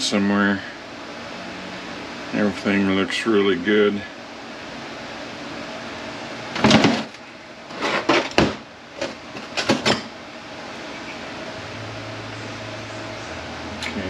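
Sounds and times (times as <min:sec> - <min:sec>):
steady background hum: 0:00.0 - 0:14.0
metal parts clunking on workbench: 0:07.7 - 0:10.1.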